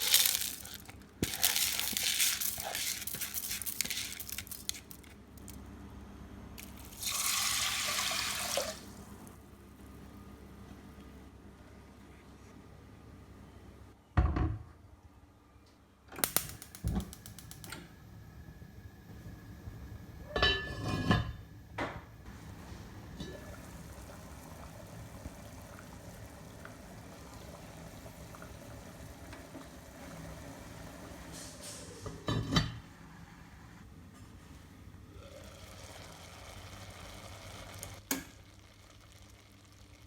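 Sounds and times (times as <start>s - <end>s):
water running: 6.6s - 9.3s, 22.3s - 32.0s
bowls and pots clinking: 20.3s - 21.4s, 23.0s - 23.9s.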